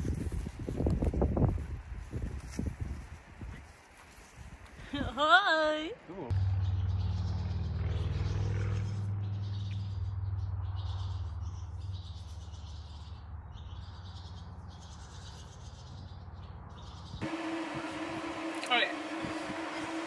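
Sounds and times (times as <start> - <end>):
birds chirping: 4.9 - 20.0
low rumble: 6.3 - 12.2.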